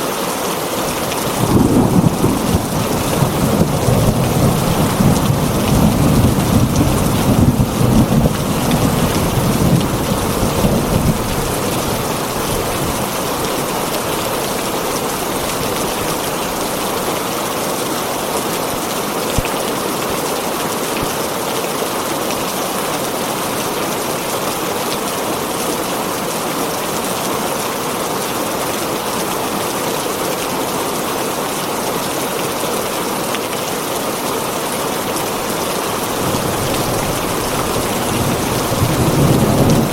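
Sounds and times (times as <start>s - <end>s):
heavy rain on a tin roof: 0.0s - 39.9s
low thunder rumble: 1.2s - 13.0s, 36.0s - 39.9s.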